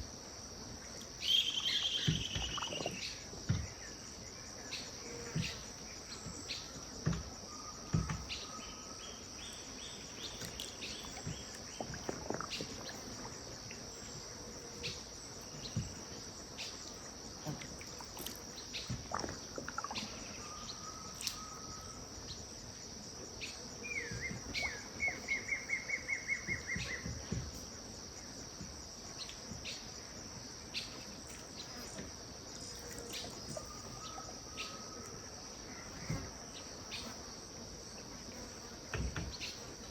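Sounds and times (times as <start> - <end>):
high insect chorus: 0.0 - 39.9
bird calls: 1.2 - 3.8, 23.4 - 27.3, 32.6 - 37.2.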